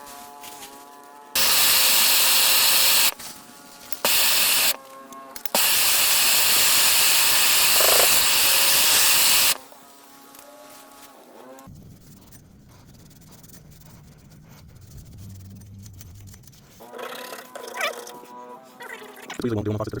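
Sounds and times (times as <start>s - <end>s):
water spraying from a hose bib: 1.4s - 3.2s, 4.0s - 4.8s, 5.6s - 9.6s.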